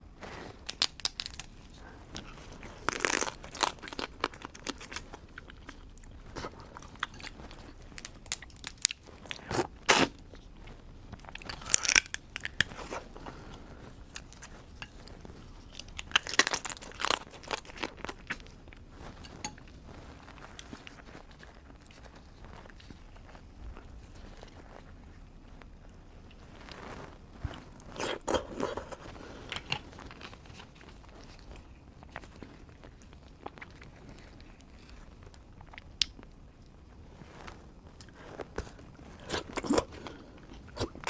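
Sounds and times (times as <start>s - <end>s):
chewing: 0.2s - 36.8s
crab shells cracking: 2.8s - 5.8s, 11.3s - 12.8s, 15.7s - 18.4s.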